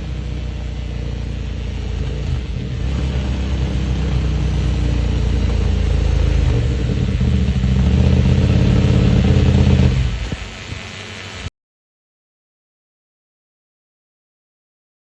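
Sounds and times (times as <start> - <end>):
motorcycle engine under load: 0.0 - 11.5.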